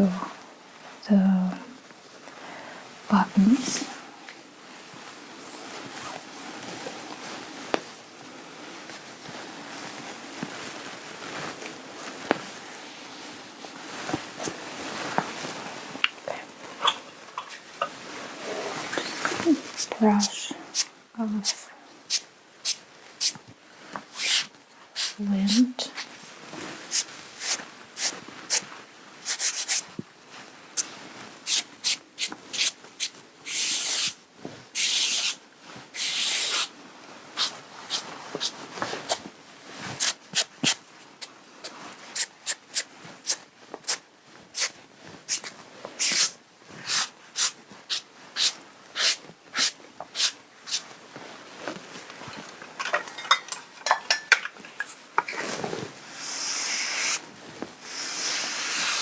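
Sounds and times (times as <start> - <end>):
brush sweeping over fabric: 24.1 - 29.9, 30.7 - 52.4, 54.8 - 59.0.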